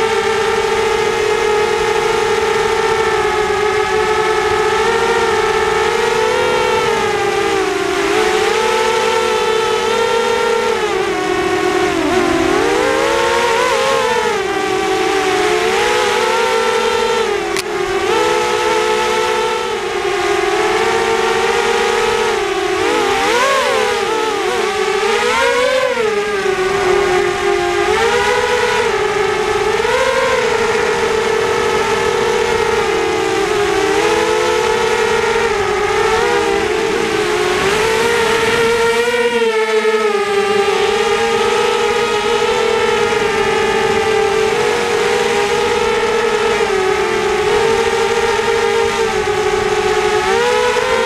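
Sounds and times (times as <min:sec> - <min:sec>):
quadcopter motors whining: 0:00.0 - 0:51.0.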